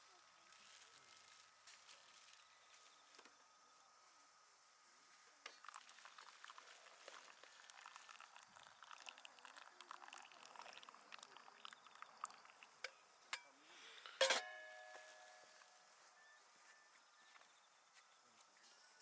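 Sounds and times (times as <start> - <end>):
faint small clicks and crackles: 0.0 - 3.4, 5.1 - 14.2
sharp ringing clink: 14.2 - 15.6.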